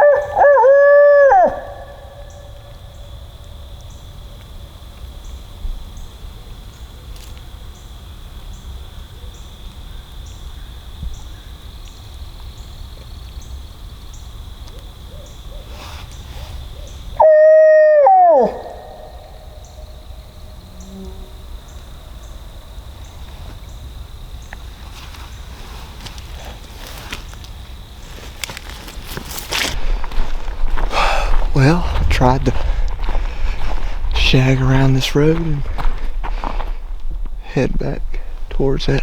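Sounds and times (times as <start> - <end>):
owl hoot call: 0.0 - 2.8, 16.7 - 21.3
high insect drone: 0.0 - 39.0.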